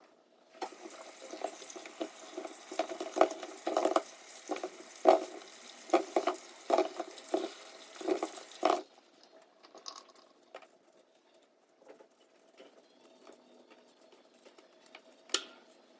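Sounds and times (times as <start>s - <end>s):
tap water running into sink: 0.6s - 8.9s.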